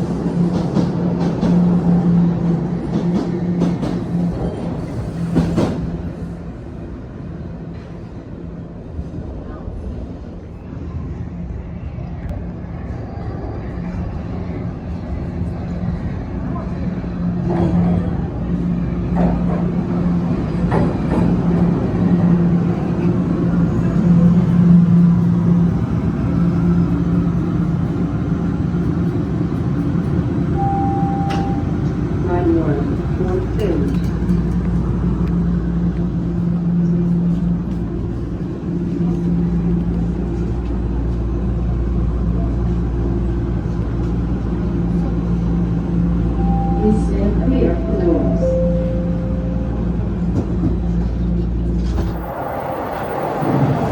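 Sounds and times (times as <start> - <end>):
subway train rumbling: 0.0 - 53.9
train motor hum: 16.1 - 53.9.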